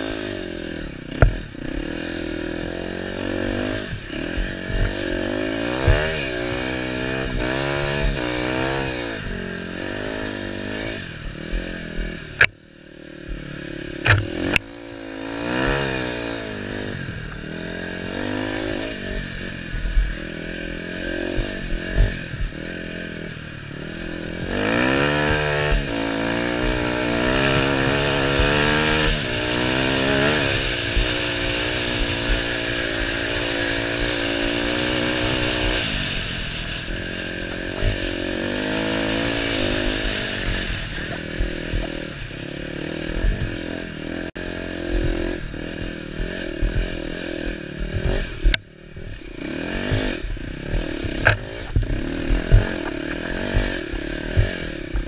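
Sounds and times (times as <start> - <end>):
motorcycle engine revving: 0.0 - 55.0
sharp engine knocks: 1.1 - 1.8, 14.0 - 14.6, 39.1 - 42.2, 43.1 - 43.7, 44.9 - 55.0.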